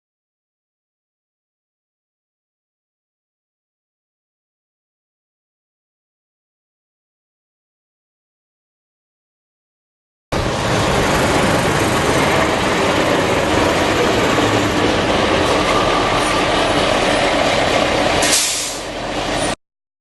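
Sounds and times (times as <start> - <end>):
heavy vehicle tyre rumble on concrete: 10.3 - 19.6.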